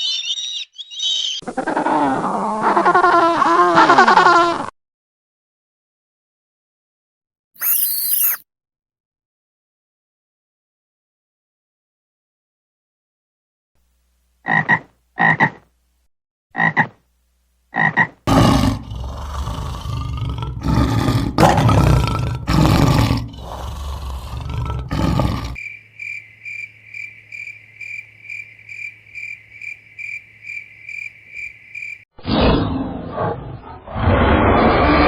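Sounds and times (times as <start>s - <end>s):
high animal chirp: 0.0s - 1.4s, 7.6s - 8.4s
animal croaks: 14.4s - 15.6s, 17.7s - 32.5s
animal rough roaring calls: 18.3s - 25.6s, 32.2s - 35.0s.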